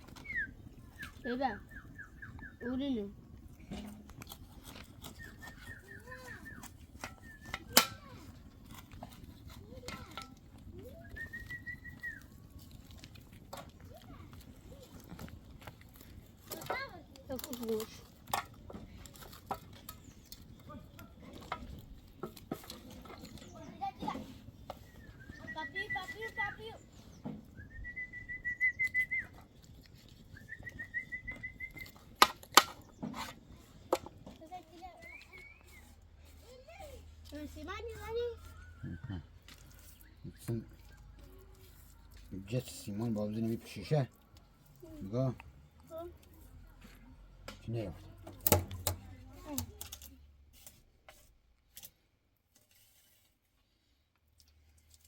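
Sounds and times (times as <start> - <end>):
birds chirping: 0.0 - 3.9, 4.6 - 7.8, 22.9 - 33.9, 34.7 - 36.0.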